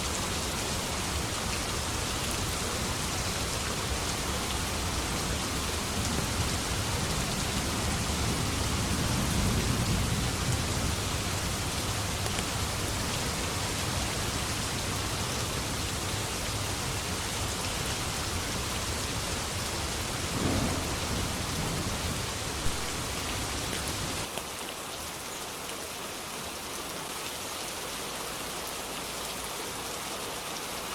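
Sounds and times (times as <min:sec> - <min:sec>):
heavy rain: 0:00.0 - 0:30.9
rolling thunder: 0:02.6 - 0:24.2.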